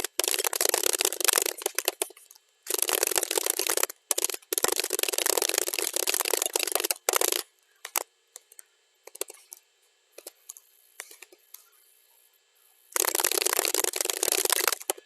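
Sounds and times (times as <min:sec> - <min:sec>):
computer keyboard typing: 0:00.0 - 0:09.6, 0:13.0 - 0:15.0.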